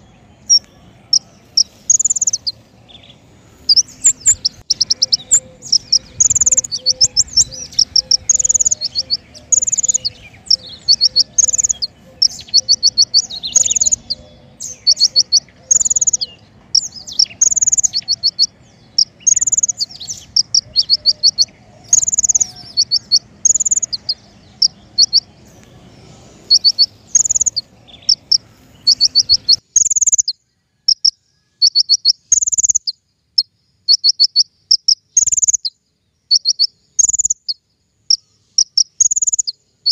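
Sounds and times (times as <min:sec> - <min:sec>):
low background hum: 0:00.0 - 0:31.5
bird song rapid high chirping: 0:00.0 - 0:39.9.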